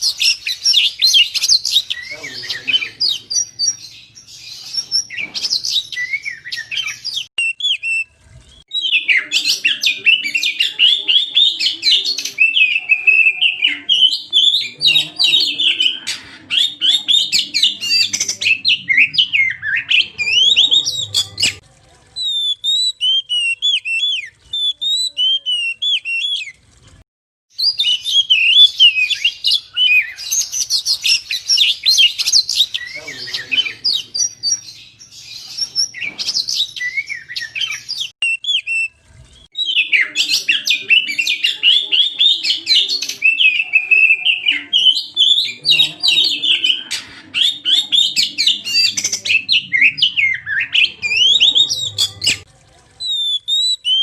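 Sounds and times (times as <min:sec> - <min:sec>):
bird singing whistles and chirps: 0:00.0 - 0:21.6, 0:22.2 - 0:26.6, 0:27.6 - 0:38.9, 0:53.0 - 0:54.0.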